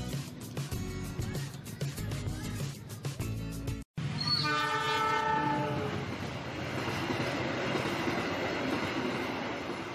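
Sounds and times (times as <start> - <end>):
train running on rails: 4.0 - 9.9
train horn: 4.2 - 6.1.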